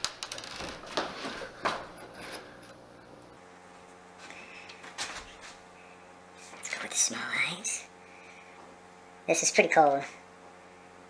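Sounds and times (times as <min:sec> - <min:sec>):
clicks and rustles of handling: 0:00.0 - 0:02.8
faint steady hum: 0:00.0 - 0:11.0.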